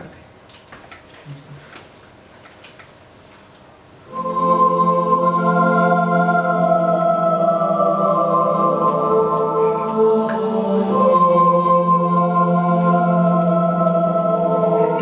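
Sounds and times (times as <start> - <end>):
organ chord held: 4.1 - 15.0.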